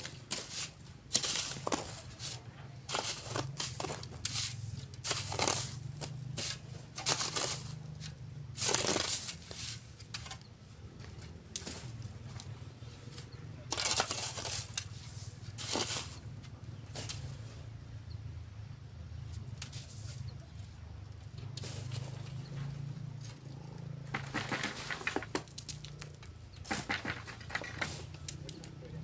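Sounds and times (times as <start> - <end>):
shoveling sand: 0.0 - 10.4, 13.7 - 17.7, 19.6 - 20.4, 21.6 - 22.8, 24.1 - 25.5.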